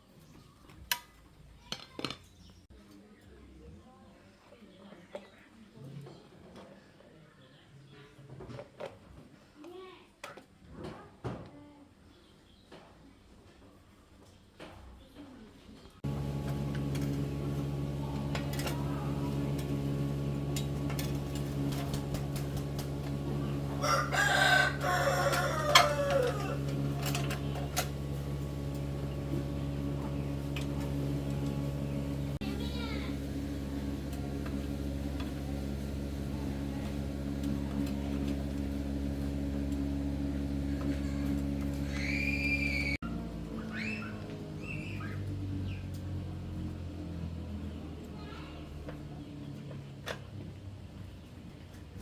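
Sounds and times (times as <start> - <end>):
small gasoline engine running: 16.0 - 51.1.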